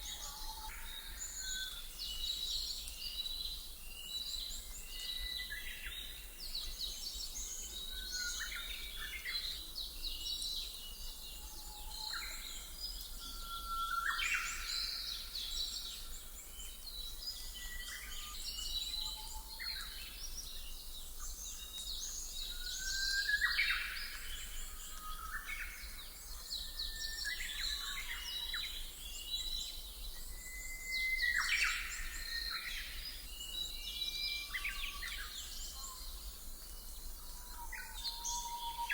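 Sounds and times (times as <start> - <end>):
songbirds chirping and trilling: 14.0 - 38.9.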